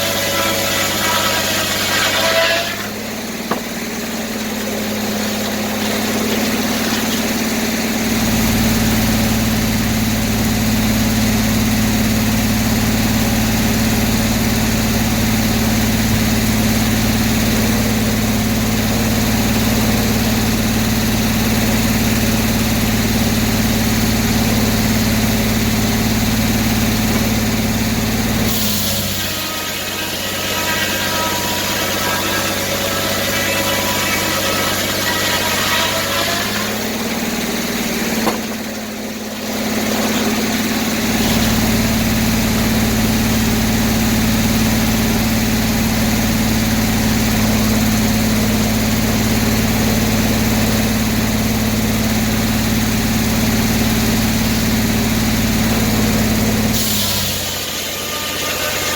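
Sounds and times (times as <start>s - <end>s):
sawmill engine running: 0.0s - 58.9s
saw ringing whine: 24.5s - 41.8s, 57.0s - 58.9s.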